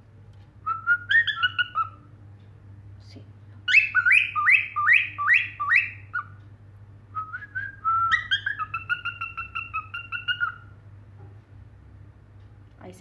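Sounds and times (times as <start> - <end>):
cockatiel whistling: 0.6 - 2.0, 3.7 - 6.4, 7.2 - 10.7.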